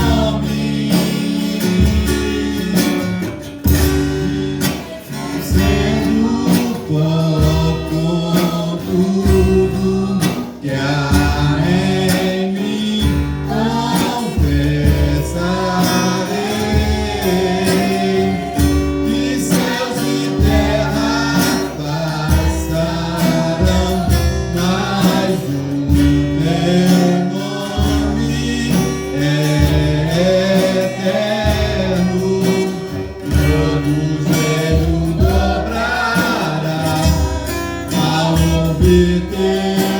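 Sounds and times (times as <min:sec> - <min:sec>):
guitar: 0:00.0 - 0:39.9
voices singing together: 0:00.0 - 0:39.9
repeating bass line: 0:12.8 - 0:39.9.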